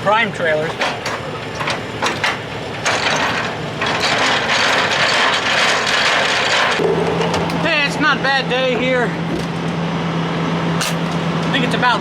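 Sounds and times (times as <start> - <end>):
grinding rasp of hand crank: 2.8 - 6.8.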